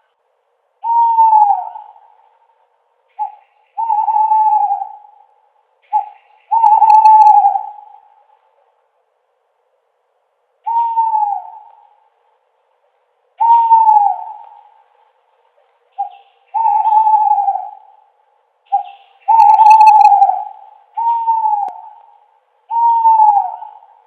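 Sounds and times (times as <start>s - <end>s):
owl hooting: 0.8s - 8.4s, 10.6s - 12.2s, 13.4s - 24.0s.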